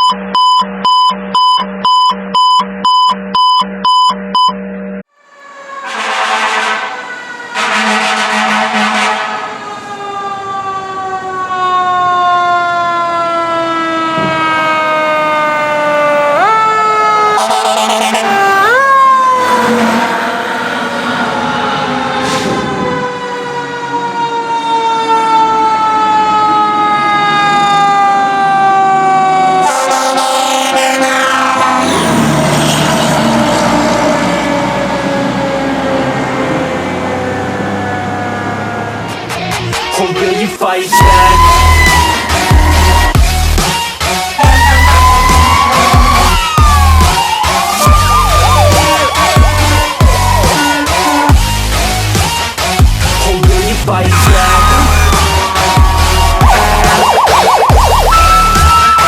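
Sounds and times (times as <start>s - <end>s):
electronic alarm beeping: 0.0s - 4.6s, 56.2s - 59.0s
fire engine horns: 5.0s - 40.0s, 40.9s - 59.0s
fire engine siren: 5.0s - 40.2s, 40.9s - 59.0s.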